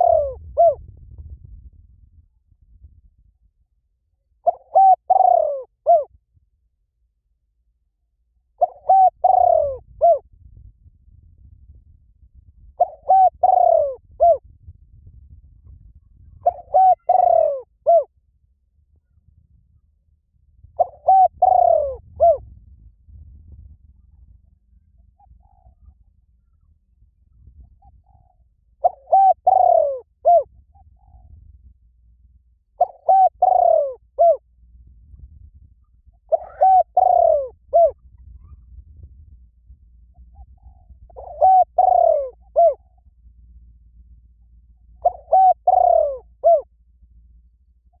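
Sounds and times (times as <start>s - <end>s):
cooing bird call: 0.0s - 0.8s, 4.4s - 6.1s, 8.6s - 10.2s, 12.8s - 14.4s, 16.2s - 18.1s, 20.7s - 22.5s, 24.0s - 26.8s, 27.4s - 31.4s, 32.8s - 34.4s, 36.1s - 38.8s, 40.0s - 43.1s, 44.6s - 46.7s.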